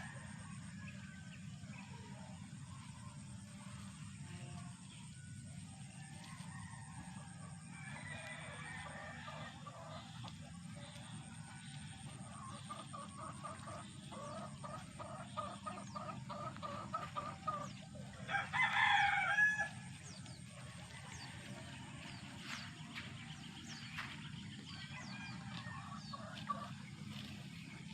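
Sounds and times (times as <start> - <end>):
chickens clucking: 0.0 - 27.9
steady low hum: 0.0 - 27.9
rooster crowing: 5.9 - 10.0, 14.1 - 21.7, 24.7 - 26.8.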